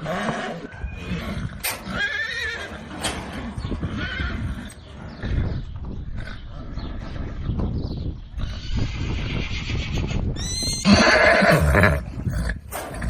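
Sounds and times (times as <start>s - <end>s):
horse whinnying: 0.0s - 4.8s, 8.5s - 12.2s.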